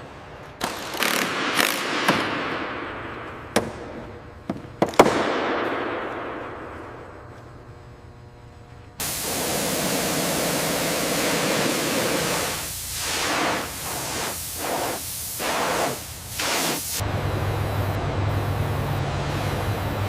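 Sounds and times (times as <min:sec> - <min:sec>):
loud hissing noise: 0:09.0 - 0:20.0.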